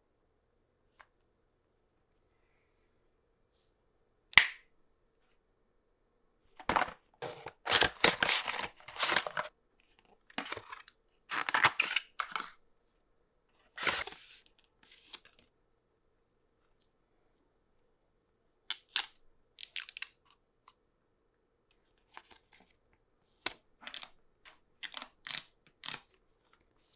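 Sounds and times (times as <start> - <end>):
packaging being opened: 6.6 - 9.5, 10.4 - 12.5, 13.8 - 14.2
packaging sharp snap: 6.7 - 9.5.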